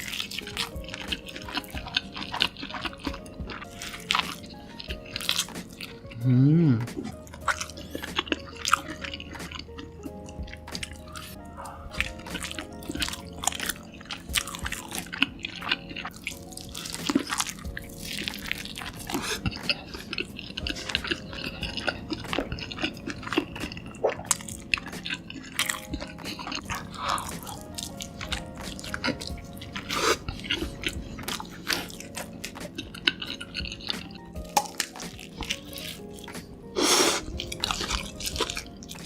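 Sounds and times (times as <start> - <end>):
close-miked biting and chewing: 0.0 - 39.0
quiet background music: 0.0 - 39.0.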